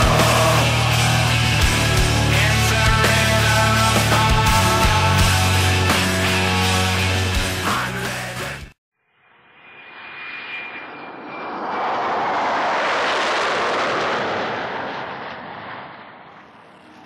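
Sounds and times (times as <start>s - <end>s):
aircraft flyby rush: 0.0s - 5.8s, 9.3s - 17.0s
heavy rock music: 0.0s - 8.8s.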